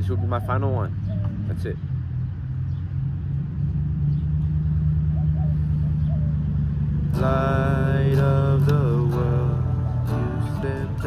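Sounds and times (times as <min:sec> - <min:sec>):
road traffic rumble: 0:00.0 - 0:11.0
acoustic guitar chord strummed: 0:07.1 - 0:11.0.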